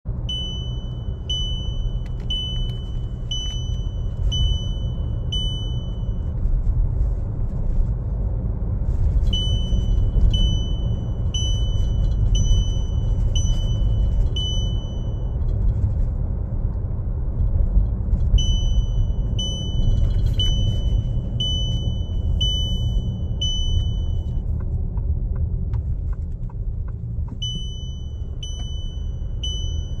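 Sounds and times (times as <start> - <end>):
vehicle engine rumble: 0.0 - 30.0
electronic warning beeps: 0.2 - 6.4, 9.3 - 15.4, 18.4 - 24.4, 27.4 - 30.0.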